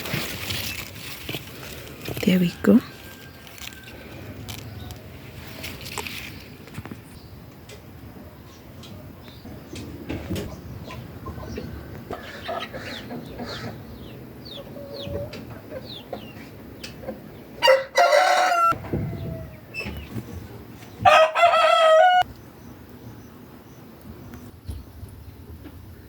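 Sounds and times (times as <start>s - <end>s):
small birds chirping: 2.0s - 17.4s
rooster crowing: 2.6s - 4.9s, 17.6s - 19.8s, 21.0s - 22.3s.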